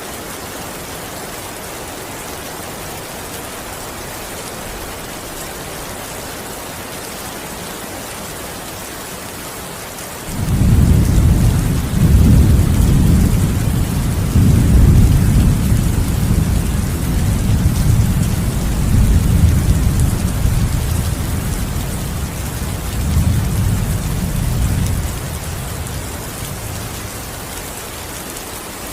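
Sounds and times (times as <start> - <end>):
steady rain: 0.0 - 28.9
thunder rumbling: 10.3 - 27.5.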